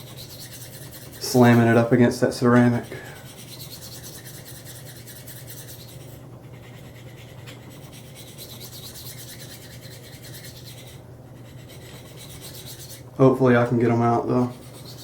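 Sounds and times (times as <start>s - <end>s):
low hum: 0.0s - 15.0s
knife scraping on sharpening stone: 2.7s - 6.0s, 7.3s - 11.0s.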